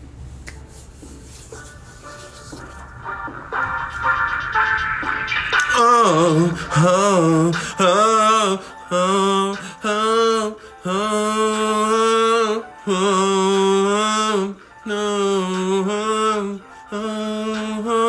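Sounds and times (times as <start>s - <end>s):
man singing slow tune: 5.6s - 18.0s.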